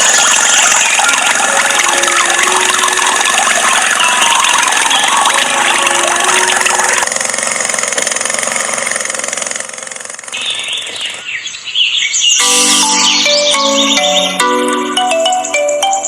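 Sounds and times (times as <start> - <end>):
mechanical whirring: 0.0 - 9.2
marimba-like jingle: 1.3 - 7.0, 12.4 - 16.0
chirp-like squeaks: 10.4 - 14.6.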